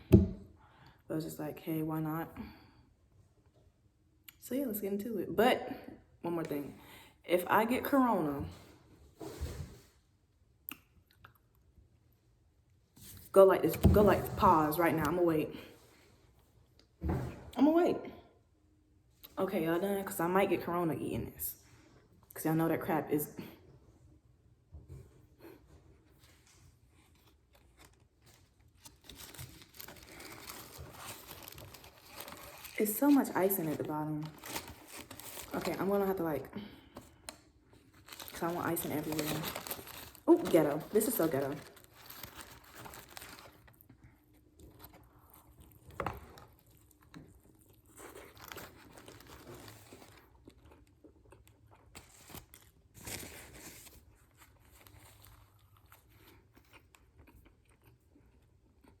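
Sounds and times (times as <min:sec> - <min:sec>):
food packaging crinkling: 0:26.2 - 0:36.3, 0:36.9 - 0:58.0
chewing with soft crunches: 0:43.6 - 0:52.7, 0:54.2 - 0:59.0.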